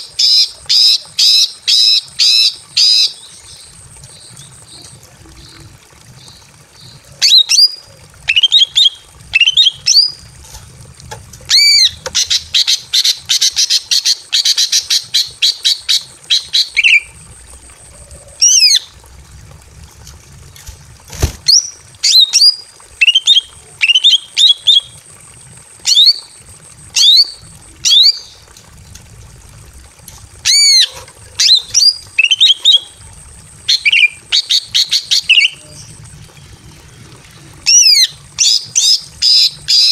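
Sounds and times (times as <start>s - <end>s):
bird calling: 33.7s - 39.9s.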